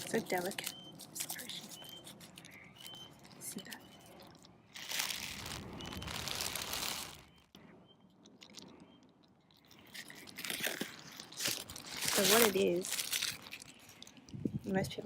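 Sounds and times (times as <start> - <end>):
paper wrapping crinkling: 0.0 - 7.5, 9.6 - 14.4.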